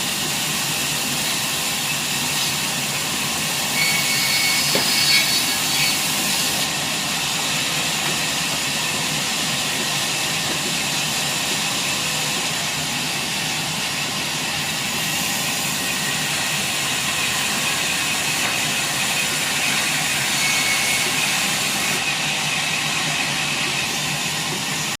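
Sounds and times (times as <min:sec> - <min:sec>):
sawmill machinery whining: 0:00.0 - 0:25.0.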